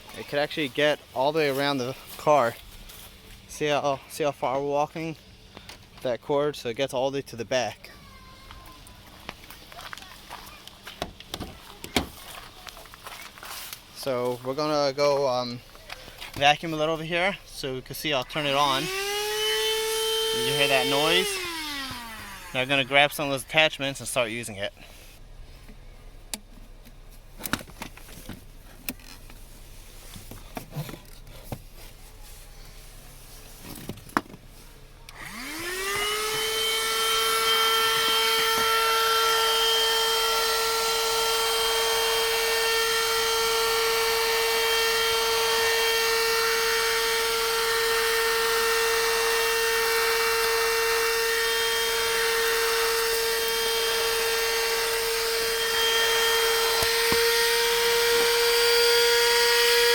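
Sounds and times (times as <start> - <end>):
vacuum motor whine: 18.2 - 22.9, 35.1 - 59.9.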